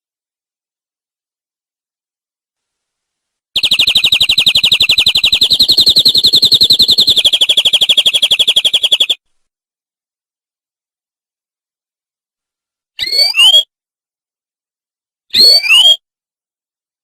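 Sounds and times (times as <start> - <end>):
canary trilling: 3.6 - 9.2.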